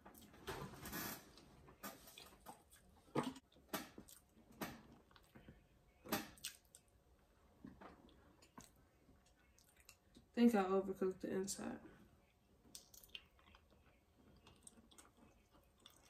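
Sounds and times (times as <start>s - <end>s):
wet chewing of food: 2.1s - 7.0s, 7.6s - 10.3s, 12.2s - 16.0s.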